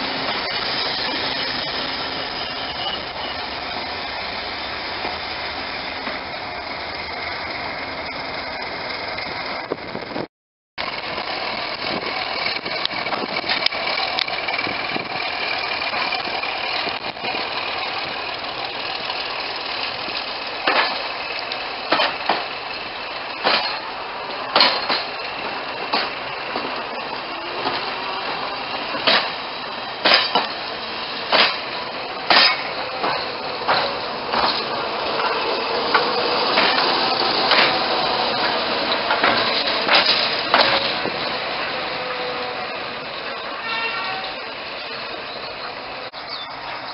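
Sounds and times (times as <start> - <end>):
train engine drone: 0.0 - 46.9
sharp metal clanks: 23.4 - 25.2, 30.0 - 30.6, 31.3 - 37.8.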